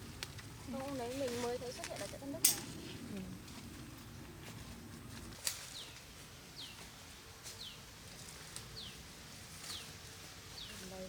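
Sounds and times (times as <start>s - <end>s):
bird chirping: 8.8s - 9.0s.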